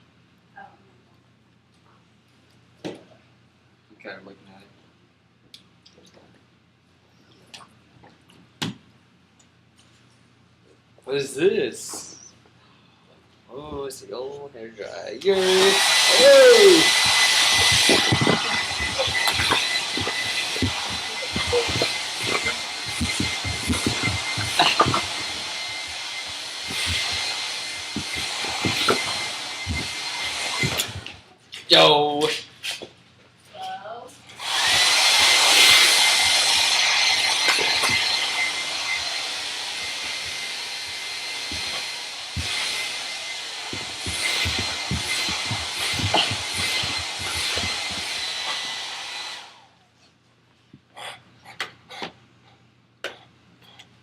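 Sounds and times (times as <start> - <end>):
hair dryer running: 15.2 - 31.2, 34.4 - 49.7.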